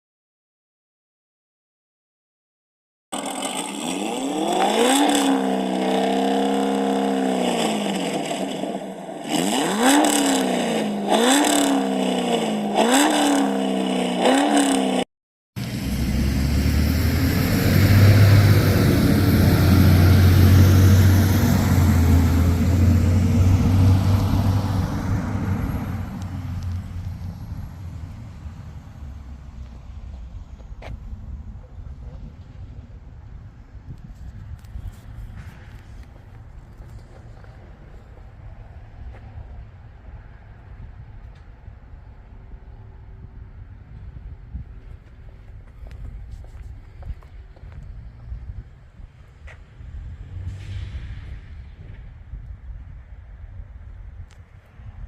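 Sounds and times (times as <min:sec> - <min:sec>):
car engine revving: 0:03.2 - 0:15.0, 0:15.6 - 0:30.8
low engine drone: 0:15.6 - 0:52.3.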